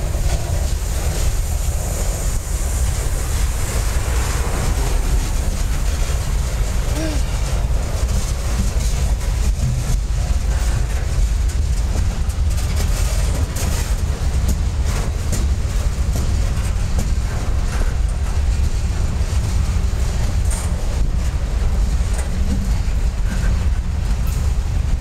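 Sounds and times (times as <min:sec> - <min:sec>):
faint rail clacks: 0:00.0 - 0:25.0
train wheels rumbling on rails: 0:00.0 - 0:25.0.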